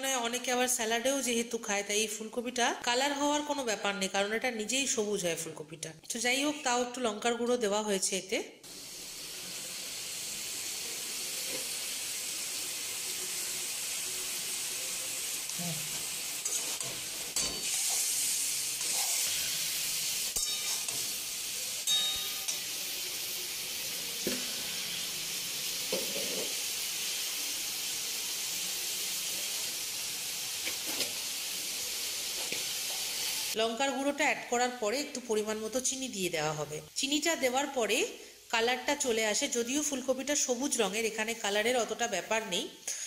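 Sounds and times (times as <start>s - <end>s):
vegetables sizzling in oil: 8.6s - 43.0s.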